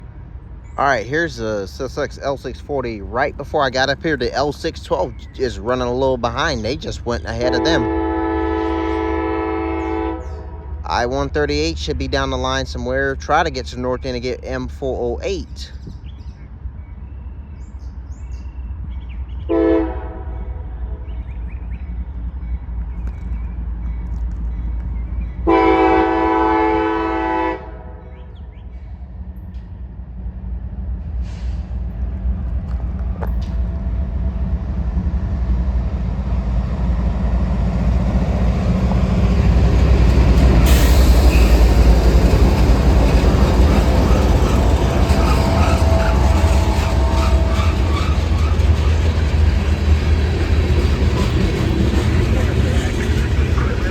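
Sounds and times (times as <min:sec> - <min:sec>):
low engine rumble of train: 0:00.0 - 0:53.9
locomotive horn blasts: 0:07.4 - 0:10.8, 0:19.5 - 0:21.0, 0:25.4 - 0:28.1, 0:44.0 - 0:48.9.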